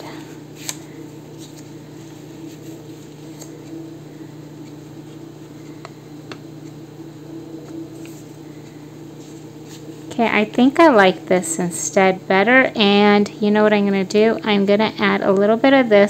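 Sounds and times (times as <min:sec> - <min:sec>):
low room hum: 0:00.0 - 0:16.0
paper rustling: 0:00.6 - 0:03.8.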